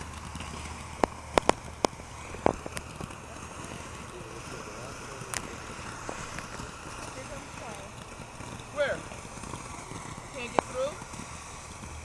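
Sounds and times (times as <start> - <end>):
firecracker pops: 0.0 - 4.1, 5.2 - 12.0.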